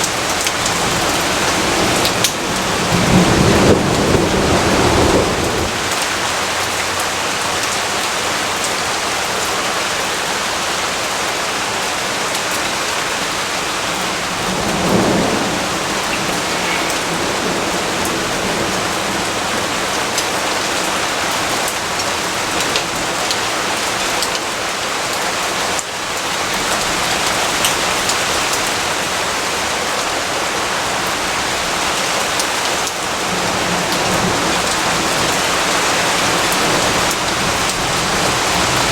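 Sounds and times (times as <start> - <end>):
steady rain falling: 0.0 - 38.9
low rumble of thunder: 0.1 - 6.0, 13.7 - 20.7.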